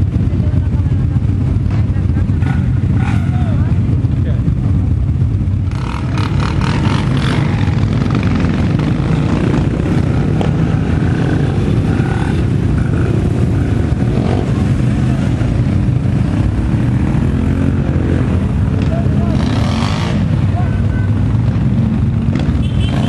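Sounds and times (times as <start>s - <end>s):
quad and motorcycle engines running: 0.0s - 23.0s.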